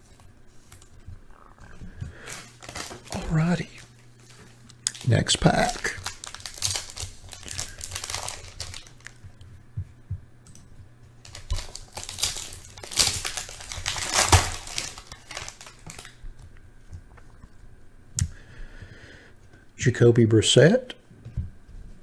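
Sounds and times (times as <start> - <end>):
foil wrapper tearing and crinkling: 1.6 - 9.2, 11.2 - 16.2
cards clicking and tapping: 1.9 - 9.4, 11.2 - 16.2.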